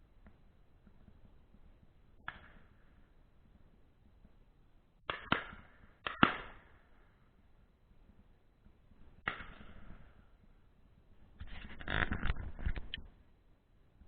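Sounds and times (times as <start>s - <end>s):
distant shotgun shots with echo: 5.1s - 6.8s.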